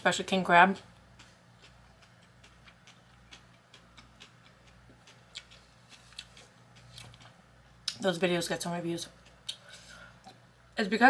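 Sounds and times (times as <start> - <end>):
mouth clicks of chewing: 0.8 - 7.3.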